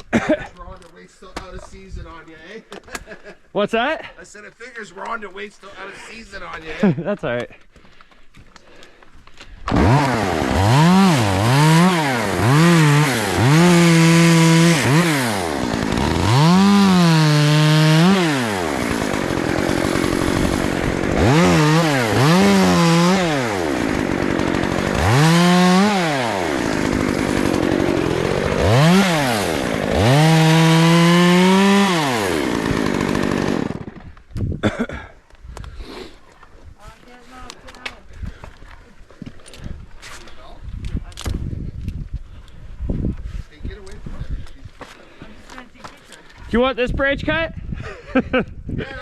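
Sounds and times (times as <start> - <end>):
chainsaw revving: 9.7 - 34.2.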